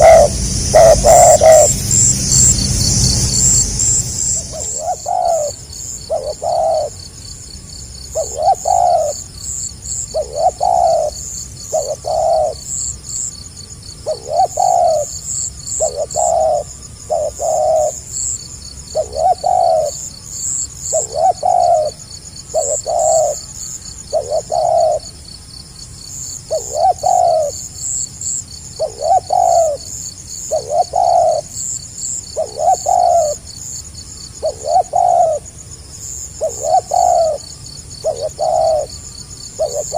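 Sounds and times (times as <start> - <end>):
high-pitched chirping: 0.0 - 5.6
dove cooing: 4.6 - 7.0, 8.2 - 9.2, 10.1 - 12.6, 14.1 - 15.1, 15.8 - 18.0, 19.0 - 20.0, 20.9 - 23.4, 24.1 - 25.1, 26.5 - 27.6, 28.8 - 29.8, 30.5 - 31.5, 32.4 - 33.4, 34.4 - 35.5, 36.4 - 39.0, 39.6 - 39.9.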